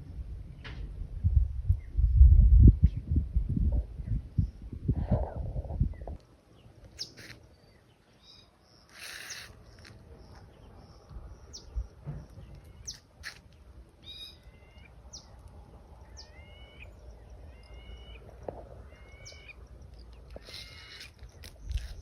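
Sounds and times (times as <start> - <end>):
steady low rumble: 0.0 - 6.2.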